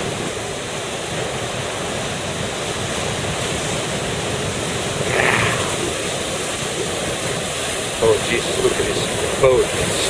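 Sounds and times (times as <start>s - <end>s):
big surf breaking: 2.2s - 10.0s.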